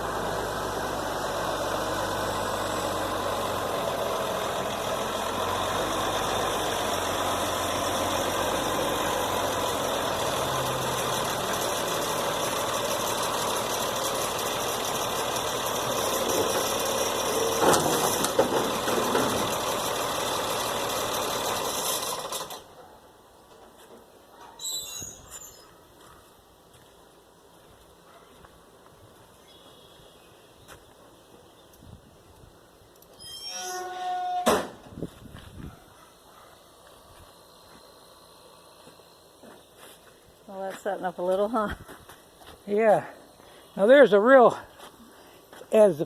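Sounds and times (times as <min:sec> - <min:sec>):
vehicle engine running: 0:00.0 - 0:22.8, 0:36.2 - 0:41.6.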